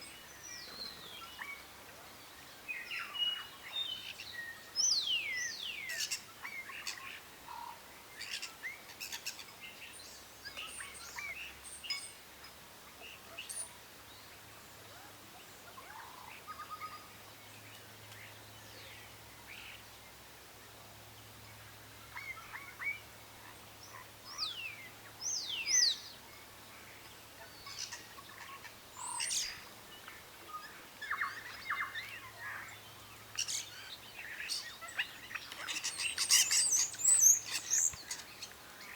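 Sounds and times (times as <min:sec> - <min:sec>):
birds chirping and calling: 0:27.0 - 0:38.9.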